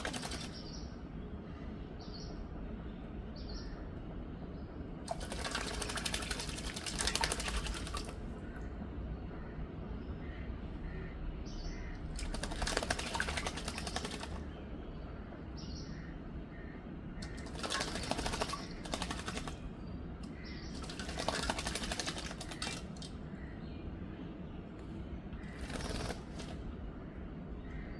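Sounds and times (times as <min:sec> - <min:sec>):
bird wings splashing in water: 0:00.0 - 0:00.7, 0:05.1 - 0:08.3, 0:12.2 - 0:14.4, 0:17.2 - 0:19.7, 0:20.3 - 0:23.2, 0:25.4 - 0:26.6.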